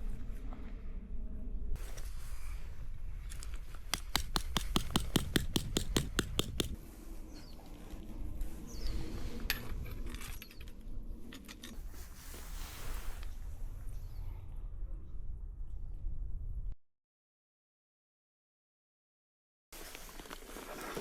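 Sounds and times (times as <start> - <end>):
rustling and handling: 3.3 - 6.8
sharp mechanical clicks: 4.0 - 6.8.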